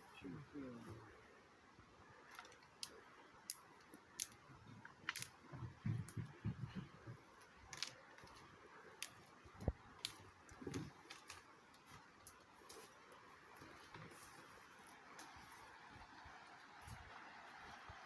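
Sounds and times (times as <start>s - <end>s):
kindling clicking and snapping: 2.3s - 5.4s, 9.0s - 11.5s
soft rustling thuds: 5.4s - 7.4s.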